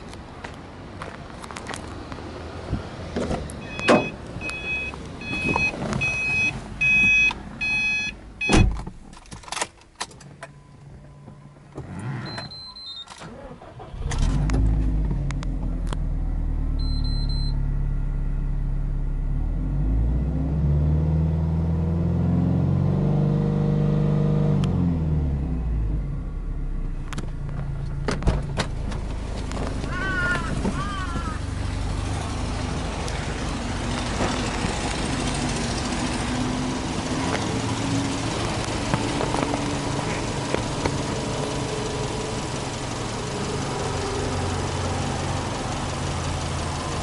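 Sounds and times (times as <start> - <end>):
dashboard warning beeps and chimes: 3.6 - 8.7, 12.3 - 13.1, 16.8 - 17.6
car engine idling: 25.9 - 47.0.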